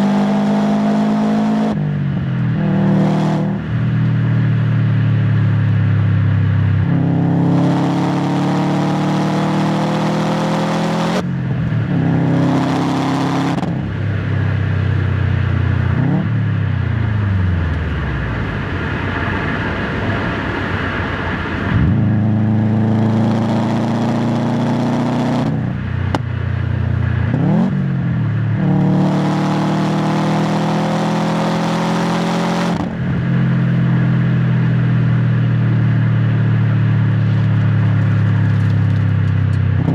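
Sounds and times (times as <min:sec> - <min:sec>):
car exhaust under hard acceleration: 0:00.0 - 0:39.9
engine low rumble off throttle: 0:13.7 - 0:24.5, 0:32.8 - 0:39.9.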